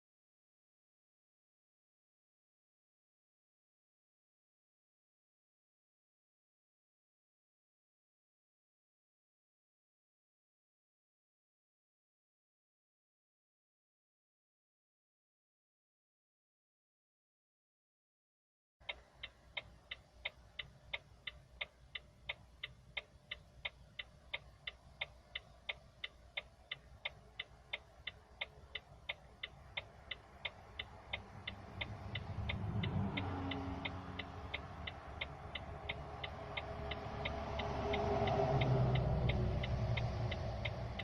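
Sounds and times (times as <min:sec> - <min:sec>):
engine and road rumble: 0:18.8 - 0:41.0
turn signal clicking: 0:18.8 - 0:41.0.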